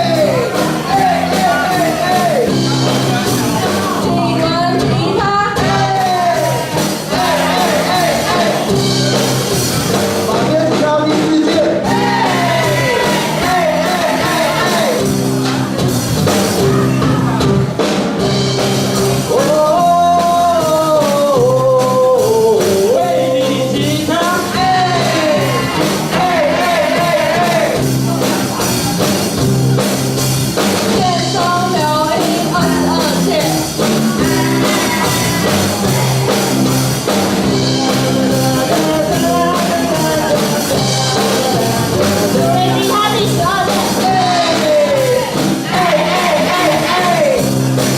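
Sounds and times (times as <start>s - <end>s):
live rock band: 0.0s - 47.9s
person singing: 19.3s - 28.6s, 37.4s - 47.4s.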